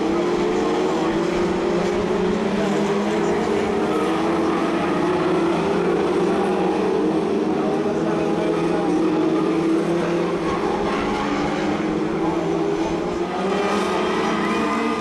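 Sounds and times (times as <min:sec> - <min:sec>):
stock car engines racing: 0:00.0 - 0:15.0.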